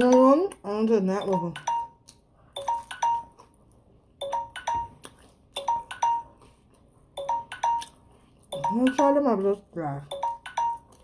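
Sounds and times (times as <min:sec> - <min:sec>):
timer alarm pinging: 0:01.1 - 0:02.0, 0:02.6 - 0:03.4, 0:04.2 - 0:05.0, 0:05.6 - 0:06.4, 0:07.2 - 0:09.4, 0:10.0 - 0:11.0.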